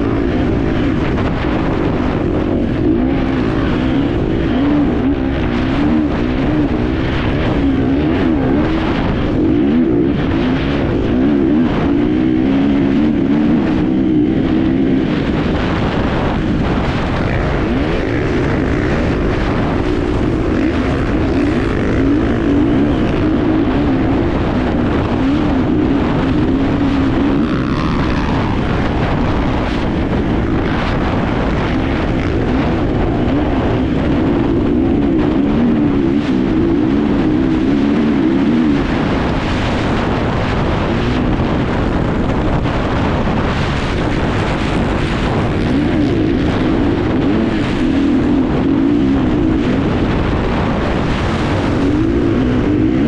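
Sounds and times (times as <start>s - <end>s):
motorcycle engine revving: 0.0s - 53.0s
wind on microphone: 0.0s - 53.0s.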